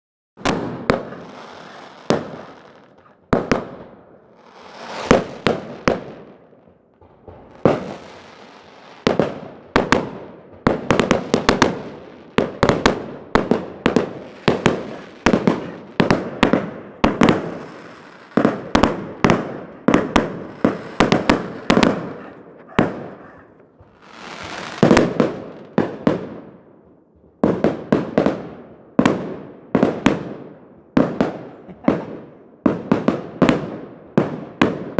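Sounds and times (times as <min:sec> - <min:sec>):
fireworks bangs and cracks: 0:00.4 - 0:34.9
fireworks hissing: 0:00.5 - 0:03.0, 0:11.2 - 0:22.2, 0:23.9 - 0:25.2.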